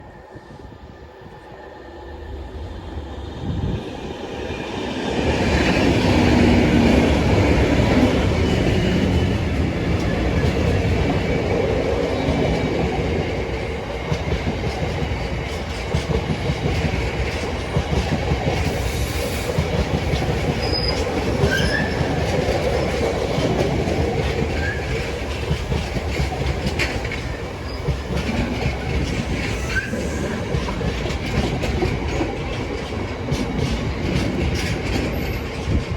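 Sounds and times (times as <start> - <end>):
train wheel squeals: 18.5 - 22.6, 24.4 - 32.8, 33.4 - 35.9
wheels clicking over rail joints: 19.7 - 35.9.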